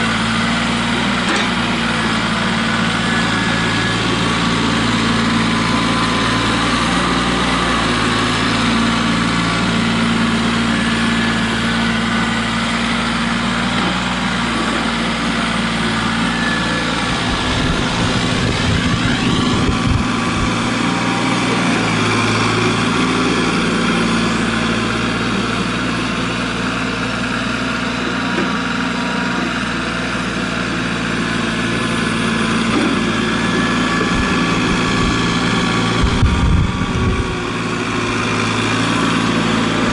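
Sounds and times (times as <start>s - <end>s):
tractor engine running: 0.0s - 39.9s
rising whine: 14.6s - 23.8s, 33.4s - 38.8s
low rumbling: 17.0s - 20.9s, 35.9s - 37.6s.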